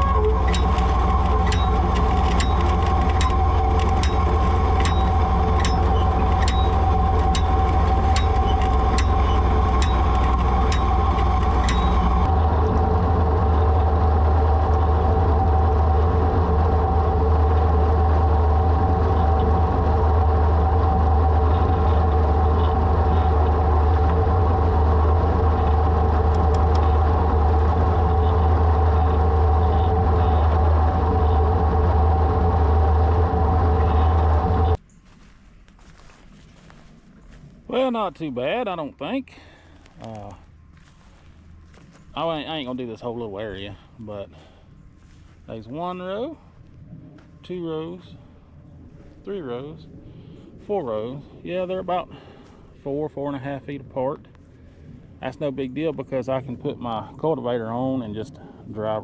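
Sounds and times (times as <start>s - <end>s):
regular clicking: 0.0s - 13.0s
tractor engine running: 0.0s - 59.0s.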